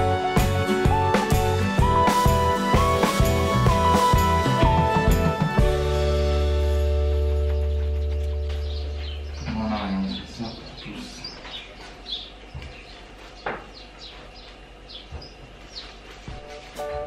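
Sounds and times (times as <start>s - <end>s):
background music: 0.0s - 9.4s, 16.4s - 17.0s
small birds chirping: 6.6s - 16.7s.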